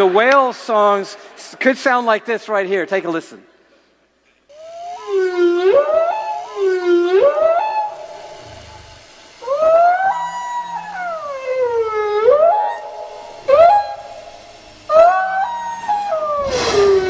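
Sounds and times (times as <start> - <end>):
whale moaning calls: 4.6 - 17.0.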